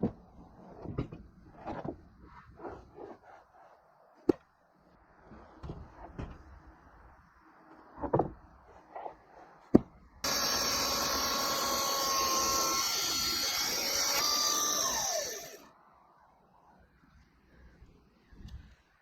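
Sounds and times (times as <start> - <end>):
electric saw running: 10.2 - 15.7.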